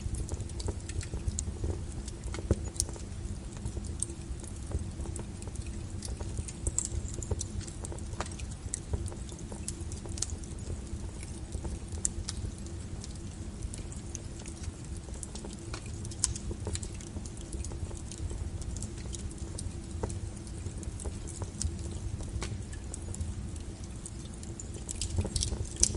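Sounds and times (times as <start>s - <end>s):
low steady rumble: 0.0s - 25.9s
wood fire crackling and popping: 0.0s - 25.9s.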